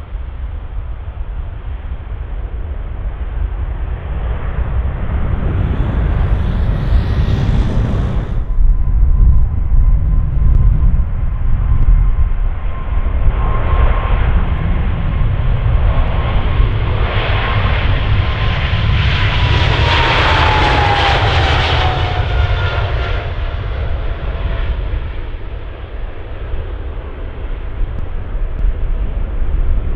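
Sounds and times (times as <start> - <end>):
jet engine whine: 2.9 - 11.2, 17.0 - 24.7
low rumble: 3.4 - 11.4.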